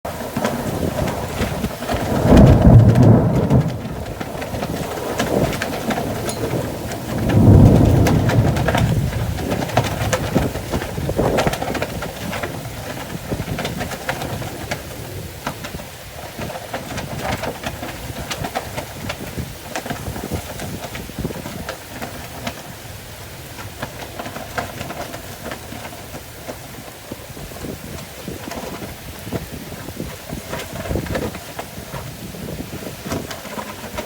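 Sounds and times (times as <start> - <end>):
rain falling: 0.1 - 34.0
raindrops ticking close by: 0.1 - 34.0
low thunder rumble: 0.5 - 34.0.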